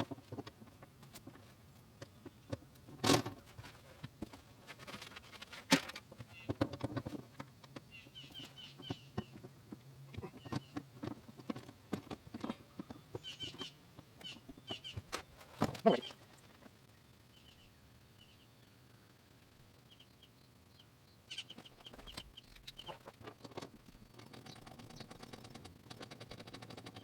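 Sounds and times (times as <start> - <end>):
bird chirps: 7.9 - 9.4, 12.8 - 15.0, 19.8 - 23.0.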